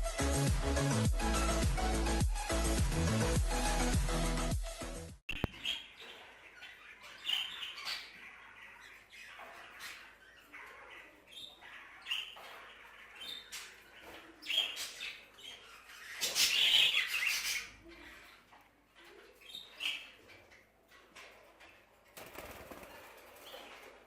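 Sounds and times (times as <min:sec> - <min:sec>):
budgerigars chirping and squawking: 0:05.3 - 0:24.0.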